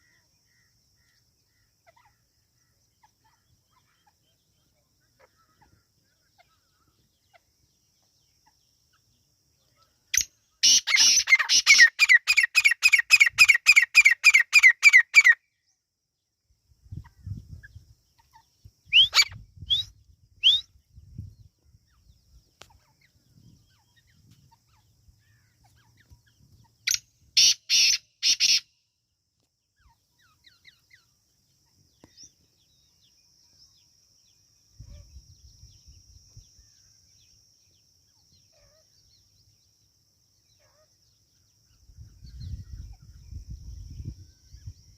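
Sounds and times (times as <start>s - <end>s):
francolin harsh repeated calls: 10.0s - 15.5s, 18.2s - 20.7s, 26.7s - 28.8s
short rising bird chirps: 10.2s - 15.6s, 17.0s - 21.3s.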